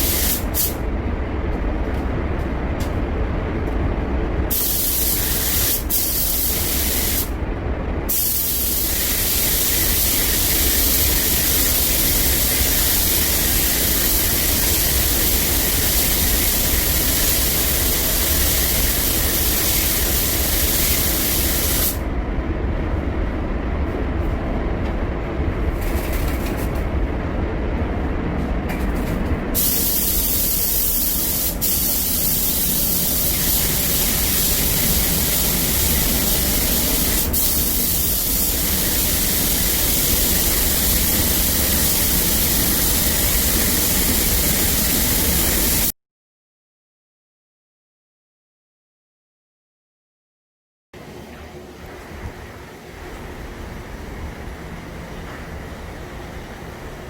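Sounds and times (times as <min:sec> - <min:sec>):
paint spray gun hissing: 0:00.0 - 0:00.8, 0:04.5 - 0:07.3, 0:08.1 - 0:22.0, 0:29.6 - 0:45.9
steady low rumble: 0:00.0 - 0:45.5.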